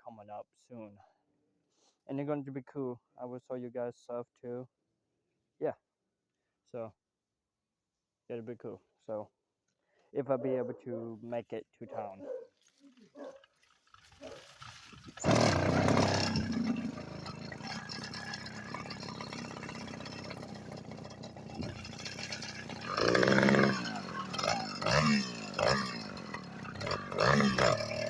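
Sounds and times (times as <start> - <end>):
small engine starting and revving: 14.2 - 28.0.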